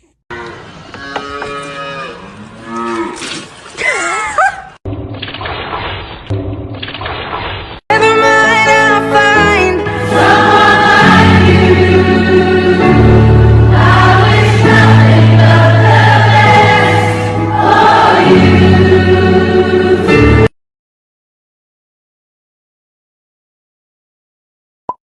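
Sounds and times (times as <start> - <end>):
choir singing held chords: 9.8 - 20.5.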